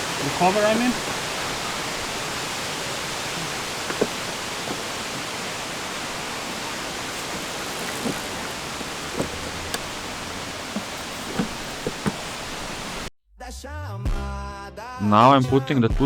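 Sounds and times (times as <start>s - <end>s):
background hiss: 0.0s - 13.1s.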